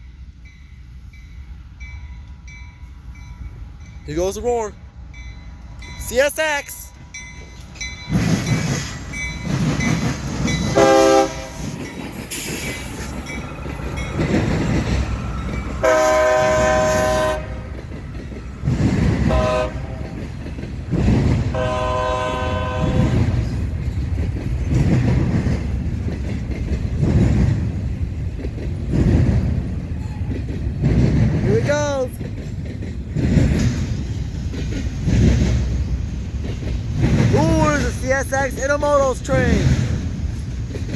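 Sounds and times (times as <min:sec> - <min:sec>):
diesel locomotives rumbling past: 0:00.0 - 0:40.9
freight cars rolling by: 0:05.6 - 0:40.9
locomotive air horn chords: 0:10.8 - 0:11.6, 0:15.8 - 0:17.7, 0:19.2 - 0:20.2, 0:21.5 - 0:23.3.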